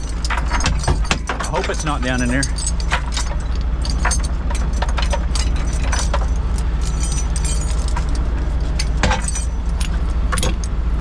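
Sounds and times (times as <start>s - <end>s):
diesel engine idling: 0.0s - 11.0s
metallic clinks and rattles: 0.0s - 11.0s.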